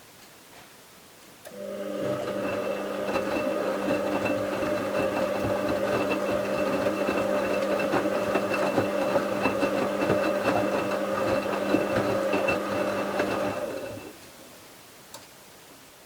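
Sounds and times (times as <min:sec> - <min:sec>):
washing machine motor humming: 0:01.5 - 0:14.1
wet towels knocking in drum: 0:02.1 - 0:14.0.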